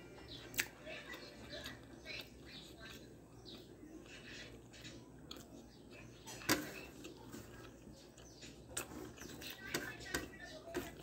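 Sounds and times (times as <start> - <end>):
person chewing: 0.4 - 0.8, 1.6 - 9.6.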